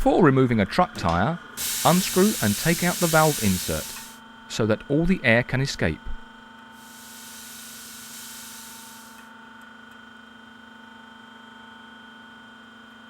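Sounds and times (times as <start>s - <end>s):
air hissing from tyre valve: 1.6s - 4.2s, 6.8s - 9.2s
faint steady hum: 6.8s - 9.2s.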